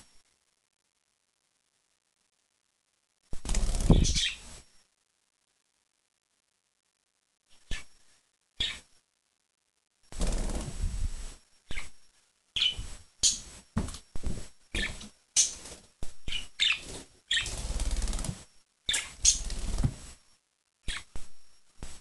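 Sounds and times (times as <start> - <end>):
wings and feathers rustling: 3.4 - 4.6, 16.7 - 18.4, 19.2 - 20.2
birds chirping: 3.9 - 4.4, 8.6 - 8.9, 12.6 - 13.5, 16.3 - 17.6, 18.9 - 19.6.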